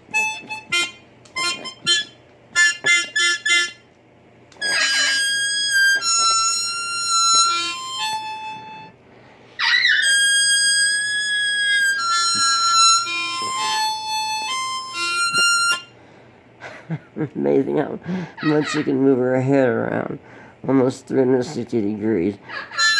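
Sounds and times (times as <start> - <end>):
blues harmonica playing: 0.0 - 9.0, 9.6 - 16.1.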